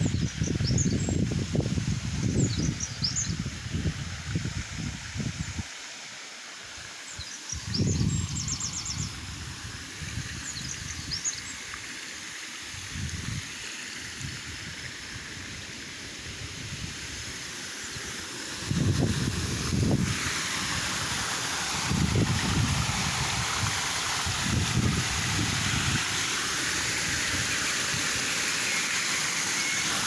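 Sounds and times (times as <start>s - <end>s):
wind gusts on microphone: 0.0s - 5.7s, 7.5s - 11.3s, 12.7s - 13.5s, 14.2s - 26.3s
flowing water rushing: 0.0s - 30.0s
small birds chirping: 2.2s - 3.4s, 7.1s - 9.2s, 10.3s - 11.7s.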